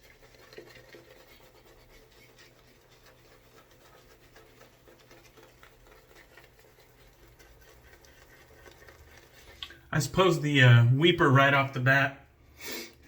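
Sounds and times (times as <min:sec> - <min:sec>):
razor scratching through stubble: 0:00.0 - 0:09.4.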